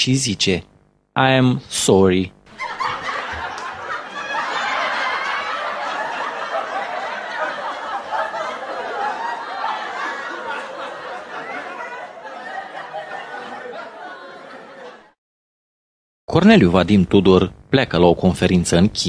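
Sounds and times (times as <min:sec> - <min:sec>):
crowd laughing: 0:02.5 - 0:15.2.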